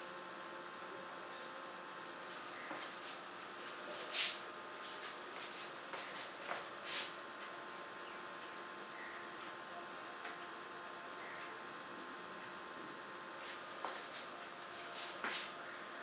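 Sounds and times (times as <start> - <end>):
paintbrush strokes on paper: 2.3 - 7.2, 13.4 - 15.5.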